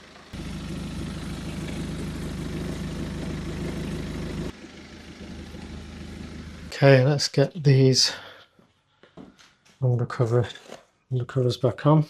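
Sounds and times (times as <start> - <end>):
diesel engine idling: 0.0 - 8.2.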